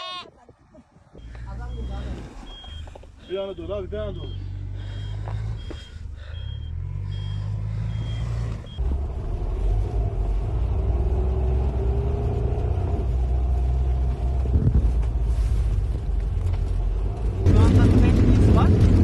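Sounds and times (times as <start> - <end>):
low engine rumble: 0.6 - 19.0
reversing alarm beeps: 1.2 - 8.8.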